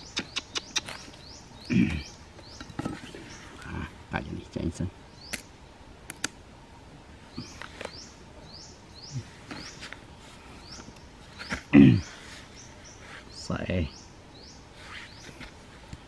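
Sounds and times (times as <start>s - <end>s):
small bird chirping: 0.0s - 3.8s, 5.1s - 5.6s, 7.3s - 15.5s.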